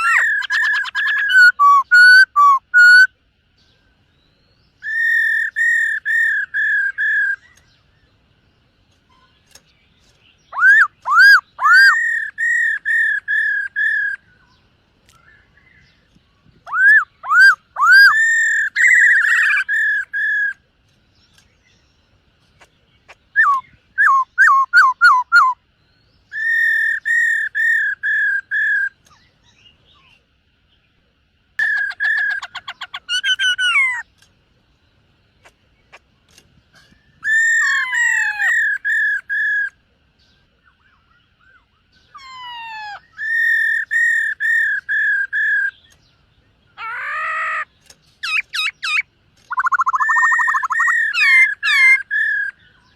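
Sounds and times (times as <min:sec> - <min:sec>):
bird singing whistled phrases: 0:00.0 - 0:03.1, 0:04.8 - 0:07.7, 0:10.5 - 0:14.6, 0:16.6 - 0:20.6, 0:23.3 - 0:25.6, 0:26.3 - 0:30.2, 0:40.7 - 0:46.0, 0:46.8 - 0:52.9.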